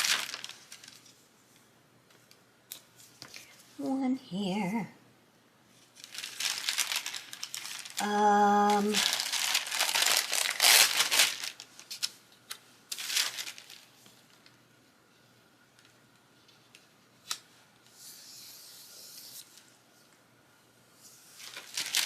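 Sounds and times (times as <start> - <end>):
paper crinkling and rustling: 0.0 - 1.2, 5.8 - 14.6, 21.3 - 22.0.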